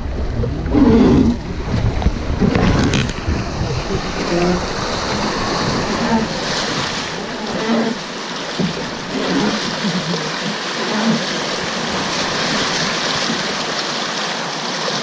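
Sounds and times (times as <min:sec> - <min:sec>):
wind buffeting microphone: 0:00.0 - 0:08.1
river water rushing: 0:00.0 - 0:15.0.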